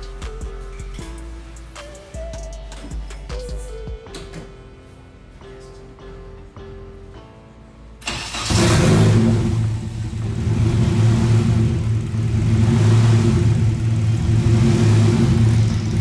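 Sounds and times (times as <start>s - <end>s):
turbo engine idling: 8.2s - 16.0s.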